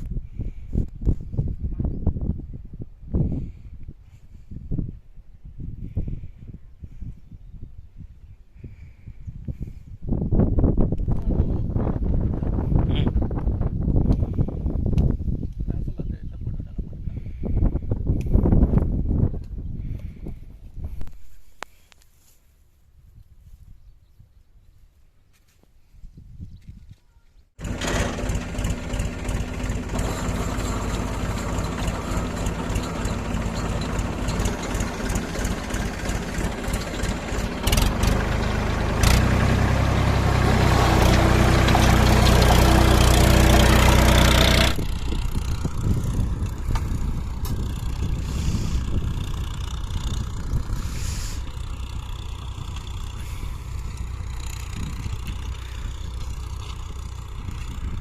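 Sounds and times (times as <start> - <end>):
tractor diesel engine under load: 27.6 - 58.0.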